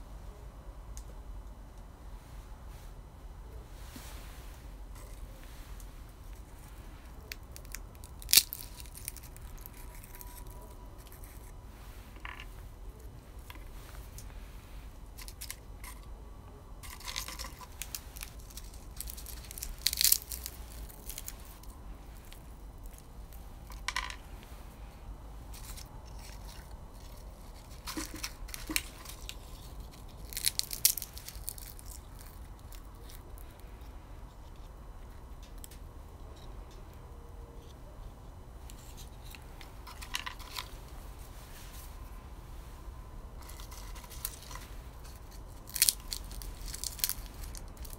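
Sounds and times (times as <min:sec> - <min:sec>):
roasted beans crunching: 0:03.8 - 0:36.8, 0:38.6 - 0:47.9.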